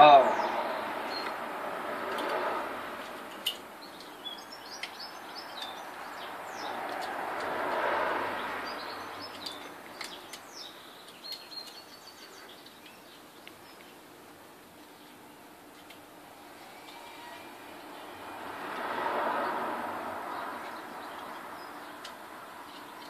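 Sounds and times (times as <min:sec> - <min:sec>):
small birds chirping: 0:03.4 - 0:07.2, 0:08.3 - 0:16.0, 0:20.2 - 0:23.0.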